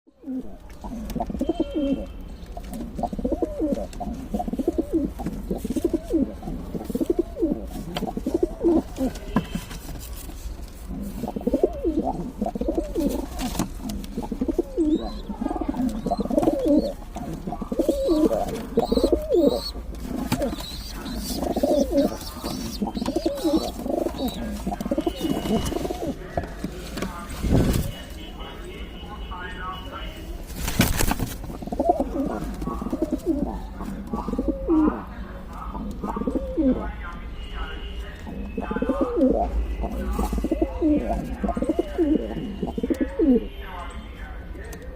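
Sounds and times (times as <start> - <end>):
pigeons cooing: 0.2 - 2.1, 2.7 - 9.2, 10.9 - 26.2, 31.5 - 36.8, 38.6 - 43.4.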